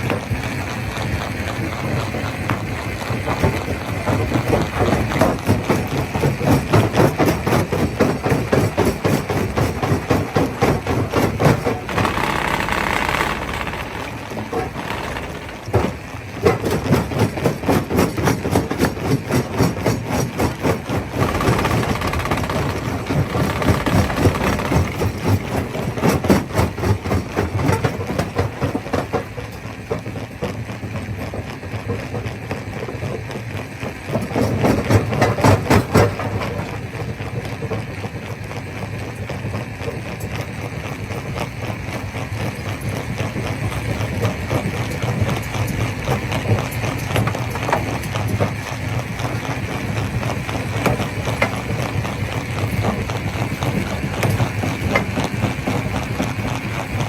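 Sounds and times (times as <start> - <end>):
stone crusher rumble: 0.0 - 27.3.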